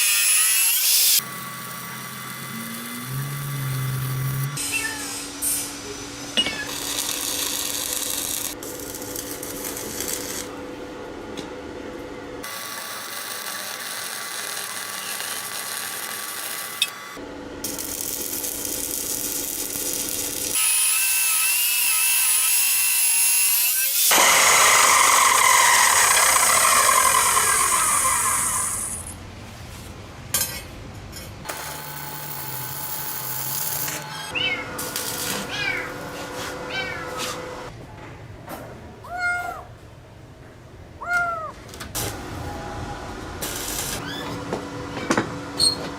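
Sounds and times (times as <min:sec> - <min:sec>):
power tools grinding metal: 0:00.0 - 0:05.4, 0:06.4 - 0:10.5, 0:12.4 - 0:29.1, 0:31.5 - 0:35.6.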